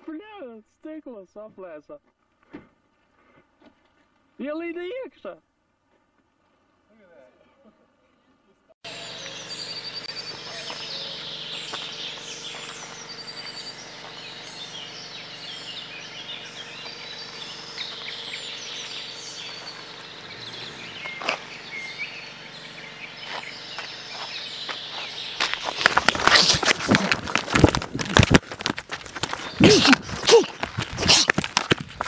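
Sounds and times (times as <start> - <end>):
birds chirping and twittering: 8.8 - 32.0.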